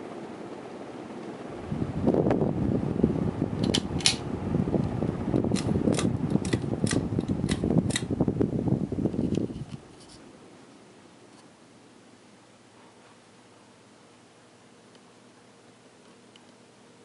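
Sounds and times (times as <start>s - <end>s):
ceiling fan rushing: 0.0s - 17.0s
sharp clicks: 3.6s - 4.2s, 5.4s - 8.1s.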